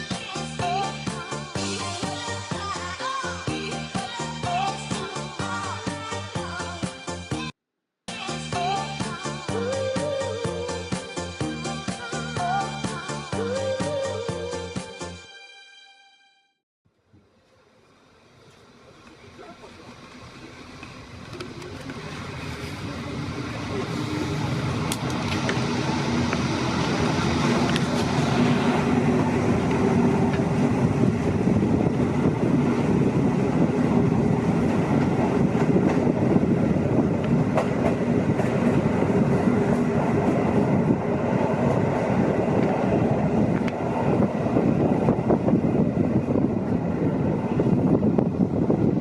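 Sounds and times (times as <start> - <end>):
train rumbling on rails: 17.2 - 49.0.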